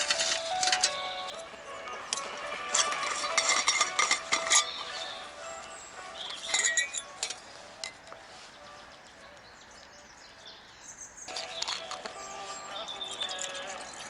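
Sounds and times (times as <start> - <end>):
hard objects clinking: 0.0 - 8.2, 11.3 - 14.0.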